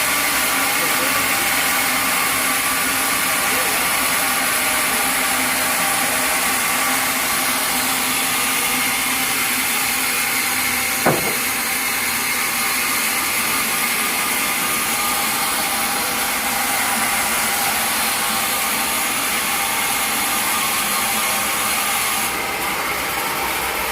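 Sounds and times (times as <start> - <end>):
sawmill machinery running: 0.0 - 23.9
sharp knock: 11.0 - 11.6.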